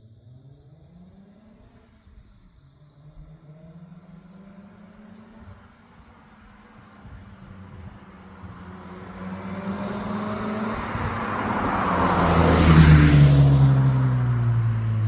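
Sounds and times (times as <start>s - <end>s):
car driving past: 3.3s - 15.0s.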